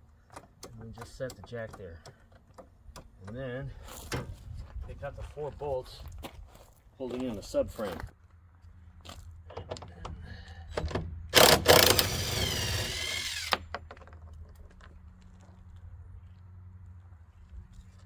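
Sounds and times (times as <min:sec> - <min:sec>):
metallic clicks and knocks: 0:00.3 - 0:03.4
power tool whining: 0:11.3 - 0:13.8.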